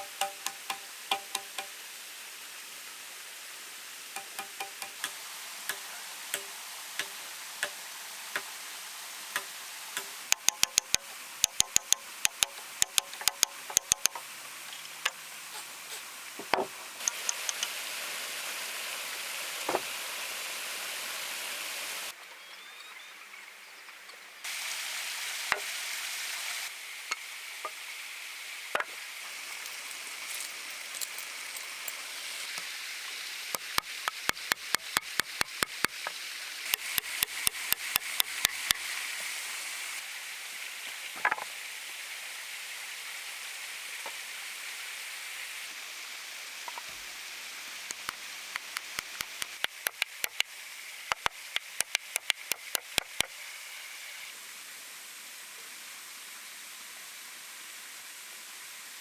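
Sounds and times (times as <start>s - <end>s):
hand tool tapping stone: 0.0s - 1.7s, 4.2s - 7.8s, 9.4s - 14.2s, 33.6s - 36.0s, 36.7s - 38.8s, 47.9s - 50.5s, 51.1s - 53.3s
steady high hiss: 0.0s - 59.0s.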